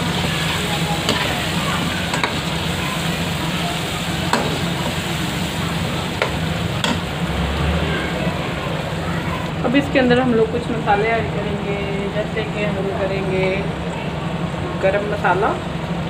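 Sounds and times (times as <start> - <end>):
food sizzling in wok: 0.0 - 9.6.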